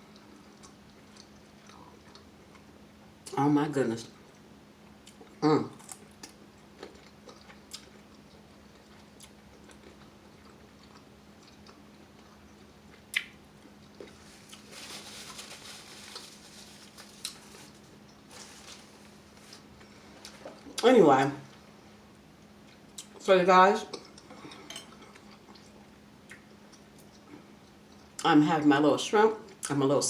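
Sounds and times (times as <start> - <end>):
close chewing and mouth sounds: 0.1 - 3.4, 4.2 - 14.7, 22.2 - 23.2, 23.9 - 28.3
small mouth clicks: 13.1 - 13.4.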